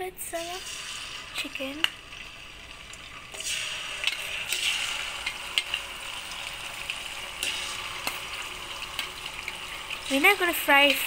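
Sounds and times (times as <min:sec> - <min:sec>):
chicken sizzling in hot oil: 0:00.3 - 0:11.0.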